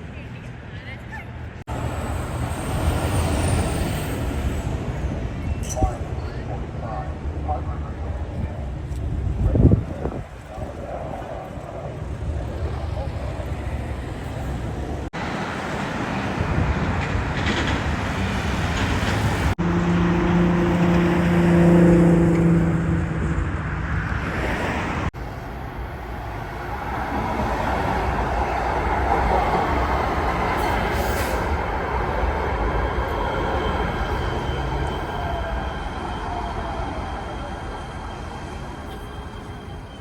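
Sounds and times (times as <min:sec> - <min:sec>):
vehicles passing: 0:08.9 - 0:32.9.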